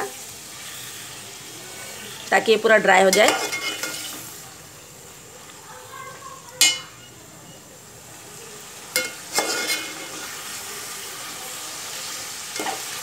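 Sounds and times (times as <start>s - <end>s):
chicken sizzling in hot oil: 0.0s - 13.0s
metal spoon clanking on pot: 3.1s - 4.1s, 6.6s - 7.1s, 8.9s - 10.2s.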